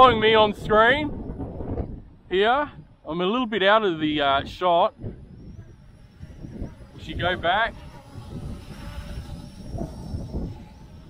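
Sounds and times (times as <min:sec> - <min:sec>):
wind buffeting microphone: 0:00.0 - 0:11.0
drone motors high whine: 0:03.8 - 0:11.0.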